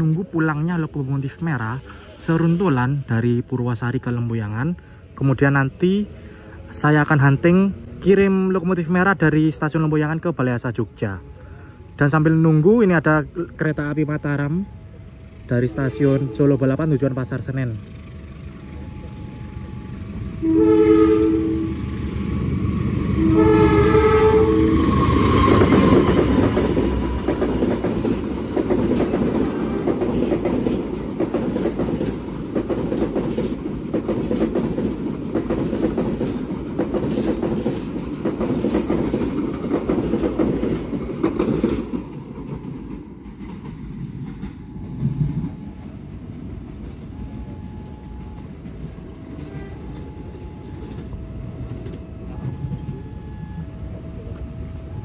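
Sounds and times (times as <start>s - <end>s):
locomotive horn blasts: 15.6s - 16.7s, 20.4s - 21.9s, 23.2s - 26.5s, 49.4s - 50.5s
train wheels clattering: 23.8s - 45.9s.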